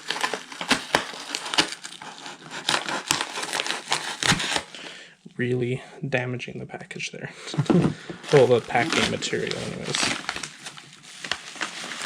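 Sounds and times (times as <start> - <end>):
packing material crinkling: 0.0 - 4.8, 8.2 - 12.0.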